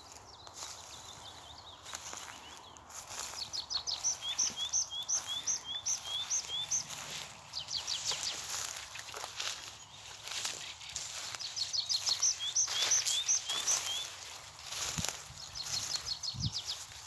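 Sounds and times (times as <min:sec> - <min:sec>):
birds chirping faintly: 0:00.0 - 0:17.0
songbird singing two-note phrases: 0:03.1 - 0:09.5, 0:10.4 - 0:14.9.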